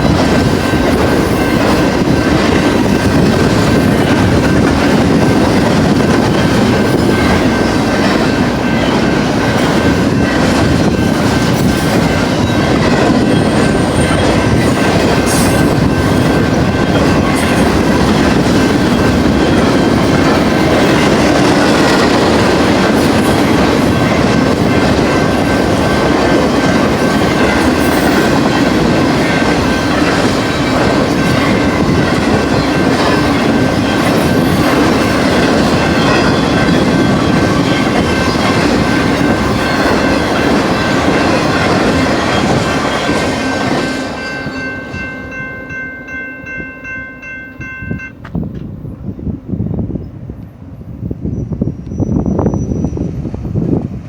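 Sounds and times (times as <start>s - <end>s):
wheel squeal: 51.2s - 53.4s.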